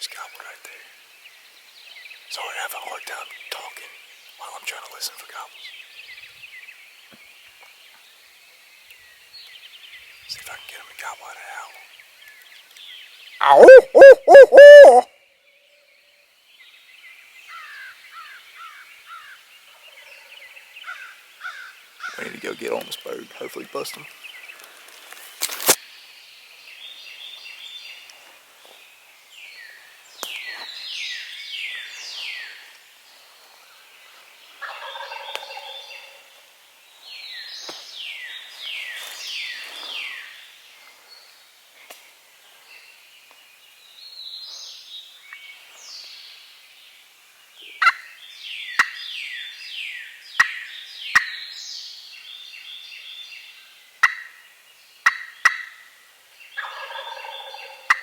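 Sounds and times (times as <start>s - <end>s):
turkey gobbling: 13.4s - 15.0s.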